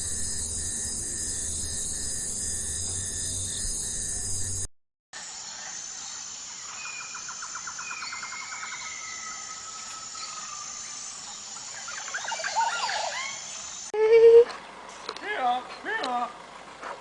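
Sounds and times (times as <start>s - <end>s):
high-pitched insect drone: 0.0s - 13.9s
bird trill: 6.6s - 13.9s.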